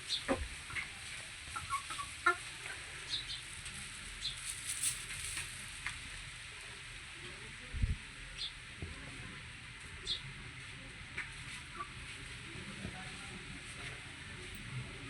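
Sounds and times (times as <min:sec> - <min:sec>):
background hiss: 0:00.0 - 0:08.8
hens clucking: 0:00.1 - 0:03.5, 0:11.1 - 0:12.2.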